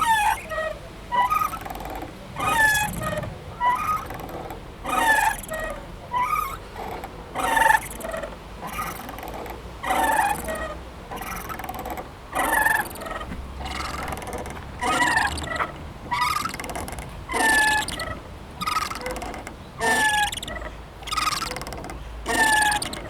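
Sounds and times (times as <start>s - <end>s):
playground swing squeaking: 0.0s - 23.0s.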